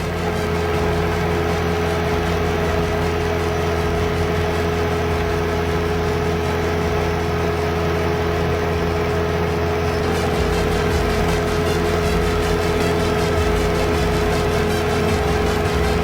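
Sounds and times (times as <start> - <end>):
drilling rig engine humming: 0.0 - 16.0
steady tone: 9.8 - 16.0.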